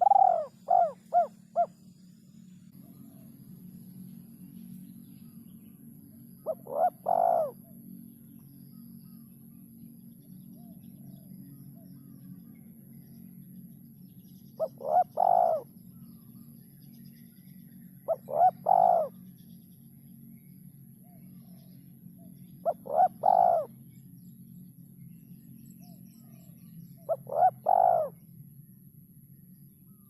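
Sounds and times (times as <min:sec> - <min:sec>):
dove cooing: 0:00.0 - 0:01.8, 0:06.4 - 0:07.7, 0:14.6 - 0:15.7, 0:18.1 - 0:19.2, 0:22.6 - 0:23.7, 0:27.1 - 0:28.2.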